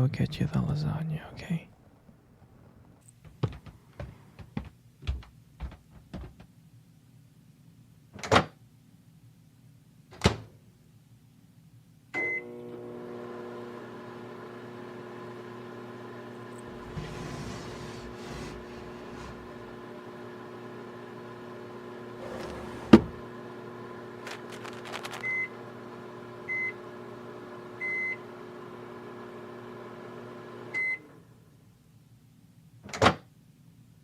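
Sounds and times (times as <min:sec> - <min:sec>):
microwave beep: 0:12.2 - 0:12.6, 0:25.1 - 0:25.6, 0:26.4 - 0:26.8, 0:27.8 - 0:28.3, 0:30.7 - 0:31.1
microwave oven humming: 0:12.2 - 0:31.6.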